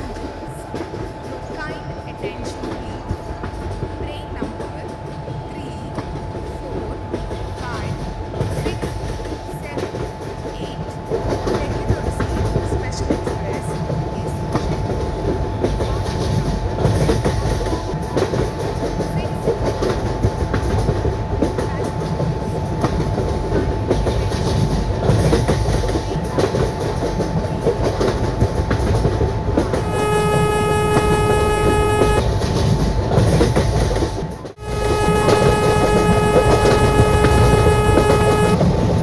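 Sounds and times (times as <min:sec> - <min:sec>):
train rumbling on rails: 0:00.0 - 0:39.0
train horn: 0:29.7 - 0:32.2, 0:34.6 - 0:38.7.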